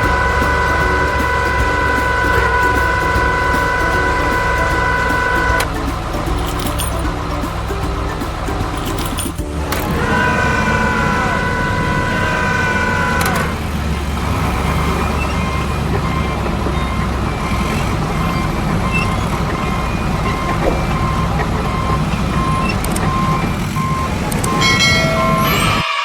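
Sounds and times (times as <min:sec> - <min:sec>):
heavy truck engine running: 0:00.0 - 0:25.8
steady tones: 0:00.0 - 0:26.0
reversing alarm beeping: 0:09.9 - 0:26.0.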